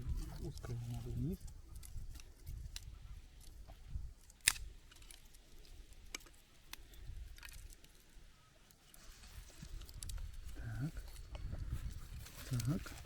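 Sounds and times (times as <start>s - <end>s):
sharp wood crack: 1.8s - 8.0s
kindling clicks and snaps: 4.2s - 8.0s.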